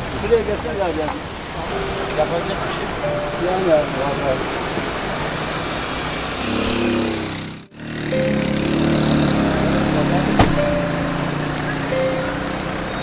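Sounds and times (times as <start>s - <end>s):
vehicle engine running: 6.4s - 13.0s.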